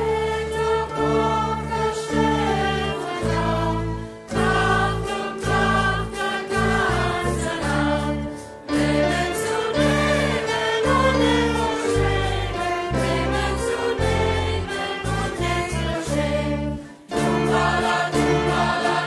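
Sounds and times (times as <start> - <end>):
voices singing together: 0.0 - 19.0.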